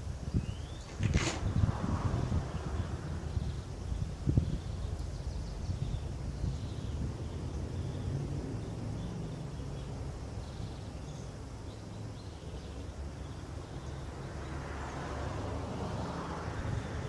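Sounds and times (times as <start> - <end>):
steady low rumble: 0.2 - 10.7
faint bird chirps: 0.3 - 1.7, 2.5 - 14.1.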